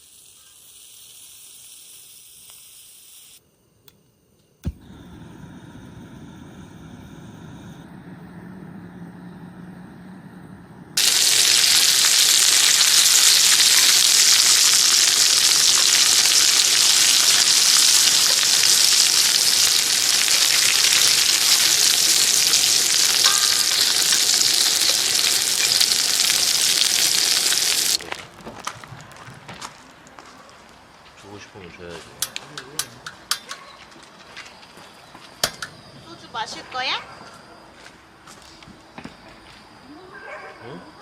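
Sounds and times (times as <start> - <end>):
food sizzling in a hot pan: 0.0 - 3.4, 11.0 - 28.1.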